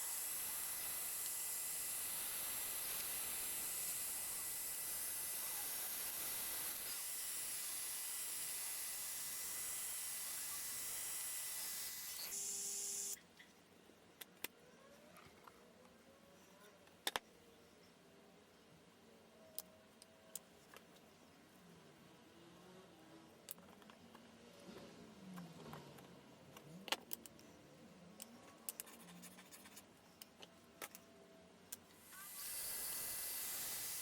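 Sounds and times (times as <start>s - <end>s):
laser cutter hissing: 32.0s - 34.0s.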